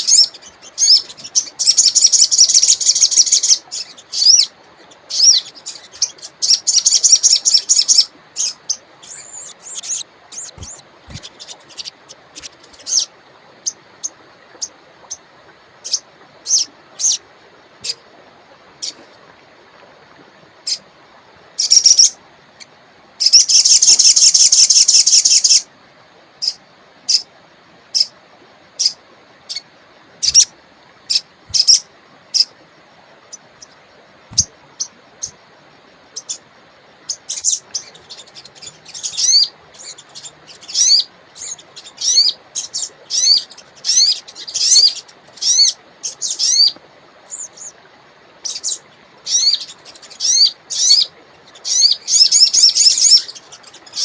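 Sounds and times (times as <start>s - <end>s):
songbird trilling and chirping: 0.0s - 4.5s, 5.1s - 13.1s, 30.2s - 30.5s, 31.1s - 31.8s, 37.1s - 47.7s.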